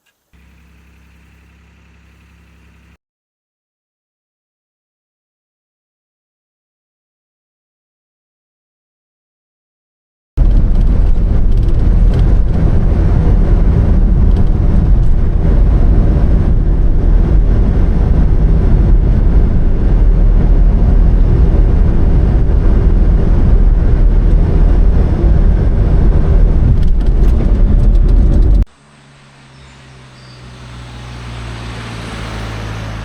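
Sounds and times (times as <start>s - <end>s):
van engine and road rumble: 0.0s - 3.0s, 10.4s - 33.0s.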